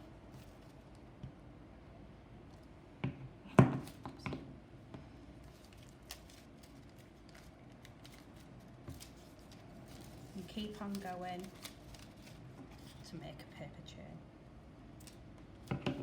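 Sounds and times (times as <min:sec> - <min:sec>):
paper crinkling: 0:05.4 - 0:13.1.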